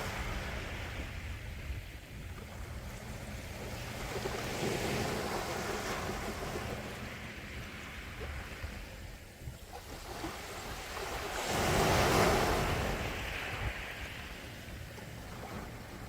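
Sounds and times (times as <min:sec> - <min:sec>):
sea waves washing ashore: 0:00.0 - 0:16.0
wind rumble on microphone: 0:00.0 - 0:16.0.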